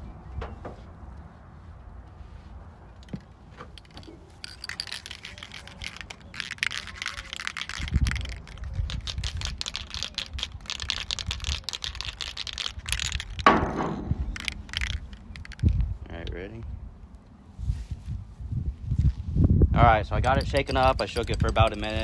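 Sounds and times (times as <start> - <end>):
spray paint can rattling: 3.8 - 16.0, 20.2 - 22.0.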